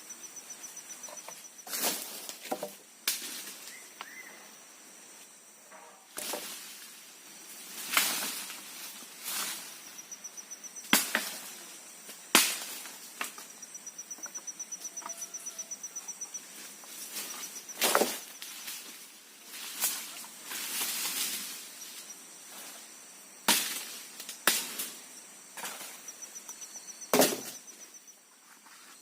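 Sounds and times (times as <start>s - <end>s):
high pulsing insect call: 0.0s - 29.0s
wood being chopped by hand: 27.1s - 27.6s.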